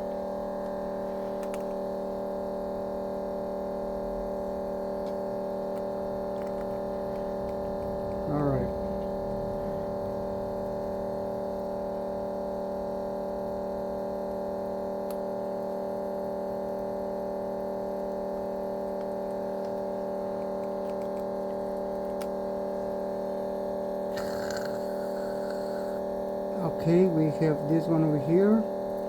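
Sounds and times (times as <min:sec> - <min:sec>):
steady multi-tone hum: 0:00.0 - 0:29.0.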